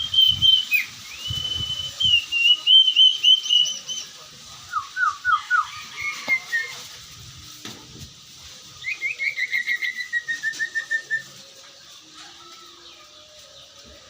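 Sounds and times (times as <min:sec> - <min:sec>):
bird whistling rapid notes: 0:00.0 - 0:04.1, 0:08.8 - 0:11.3.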